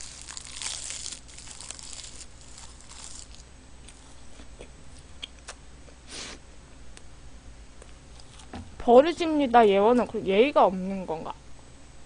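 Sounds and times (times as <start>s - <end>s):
person chewing: 0.0s - 5.6s, 7.8s - 8.5s.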